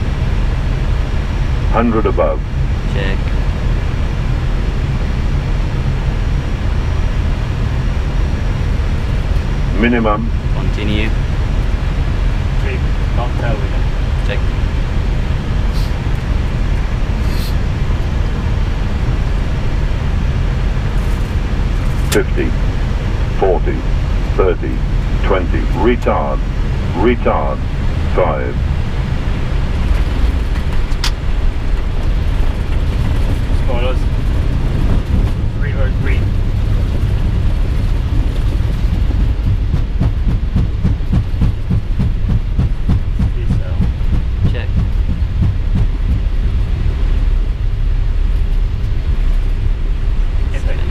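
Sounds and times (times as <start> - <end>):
aircraft engine rumble: 0.0 - 50.9
airflow noise: 0.0 - 50.9
short hiss: 15.7 - 16.0
wheels thumping over runway: 36.2 - 47.6.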